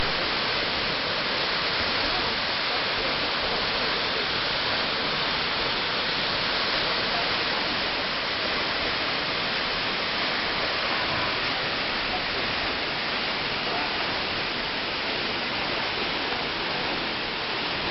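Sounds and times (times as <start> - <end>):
waterfall rushing into pool: 0.0 - 17.9.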